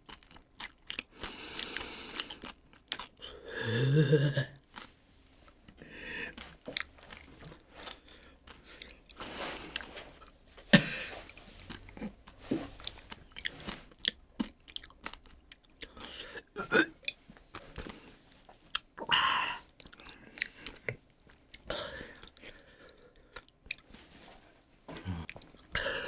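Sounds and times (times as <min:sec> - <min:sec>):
person crunching a chip: 0:00.0 - 0:05.0, 0:12.8 - 0:16.4.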